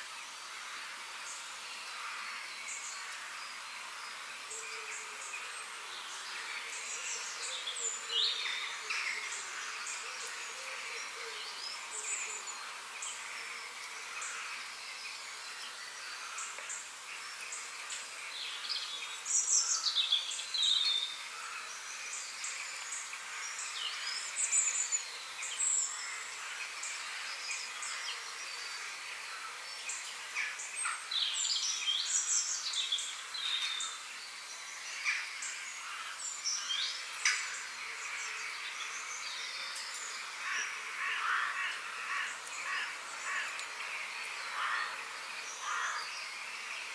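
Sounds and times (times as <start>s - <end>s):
insect-like hum: 0.0s - 46.9s.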